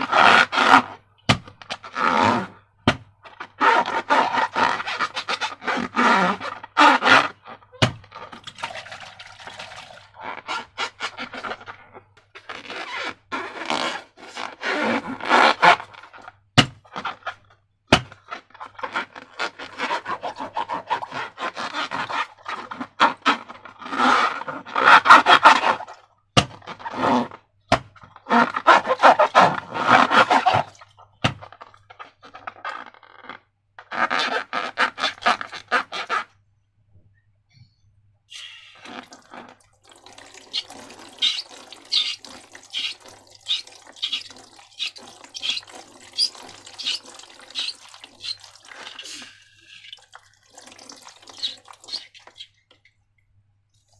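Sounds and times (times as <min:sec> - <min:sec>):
air bubbles popping: 0:38.8 - 0:52.4
slime squelching and crackling: 0:38.8 - 0:52.8.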